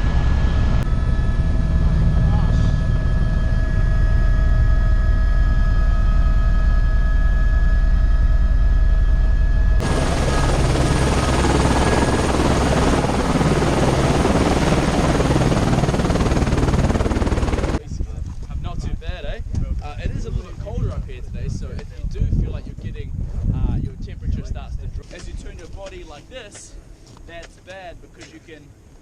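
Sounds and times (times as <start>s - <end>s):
turbine whine: 0.0s - 18.0s
helicopter rotor beat: 0.0s - 29.0s.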